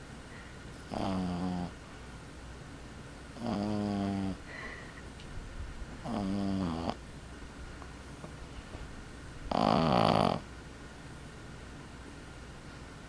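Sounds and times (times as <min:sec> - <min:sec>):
puppy snoring: 0:00.8 - 0:01.8, 0:03.4 - 0:04.5, 0:06.0 - 0:07.0, 0:09.5 - 0:10.5.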